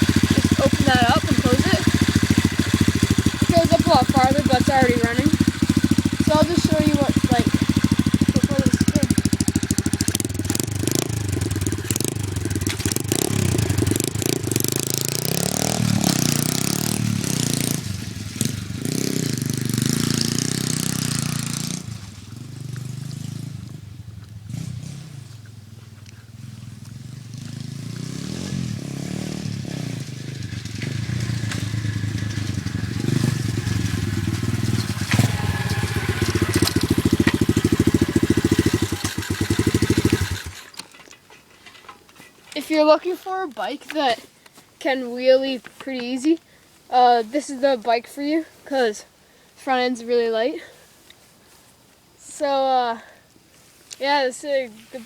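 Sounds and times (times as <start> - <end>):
dirt bike engine revving: 0.0 - 40.8.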